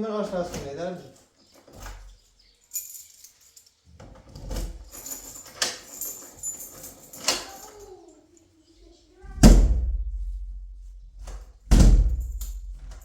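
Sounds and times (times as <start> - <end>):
metallic jingling and clinking: 1.7 - 9.0, 12.1 - 13.0
sharp knocks: 11.1 - 13.0.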